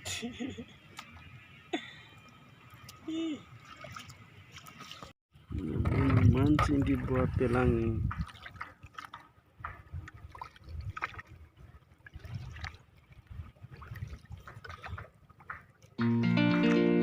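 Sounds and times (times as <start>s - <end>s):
water lapping against boat: 2.2s - 16.9s
guitar music: 16.0s - 17.0s.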